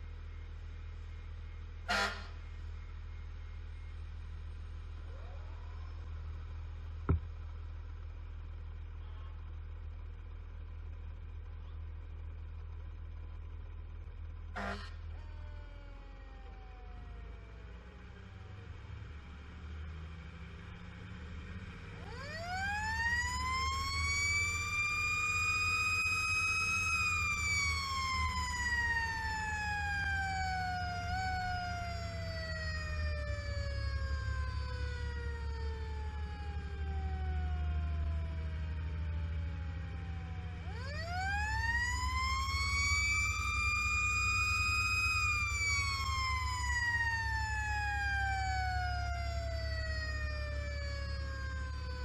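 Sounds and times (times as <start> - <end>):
truck engine rumble: 0.0 - 52.0
fire engine siren winding: 22.0 - 52.0.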